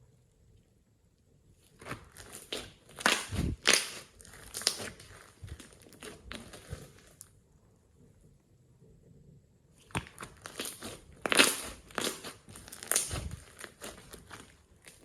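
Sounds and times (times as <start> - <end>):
slime squelching and popping: 1.6 - 7.2, 9.8 - 15.0.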